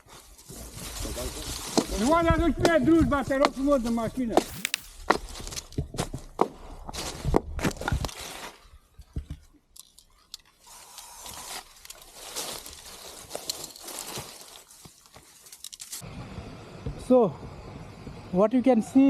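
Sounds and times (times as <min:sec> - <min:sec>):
footsteps crunching dry leaves: 0:00.0 - 0:02.2, 0:03.2 - 0:08.9, 0:10.6 - 0:16.0.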